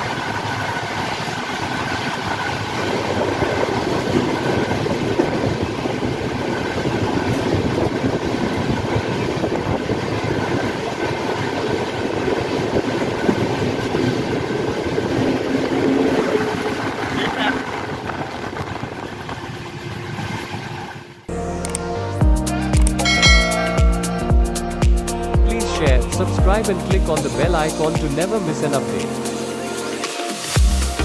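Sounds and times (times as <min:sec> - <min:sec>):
wind rush: 0:01.6 - 0:20.2.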